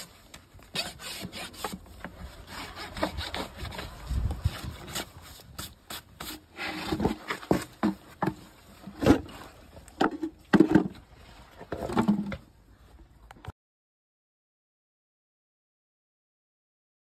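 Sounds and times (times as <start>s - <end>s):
tools scraping hoof: 0.0s - 10.7s.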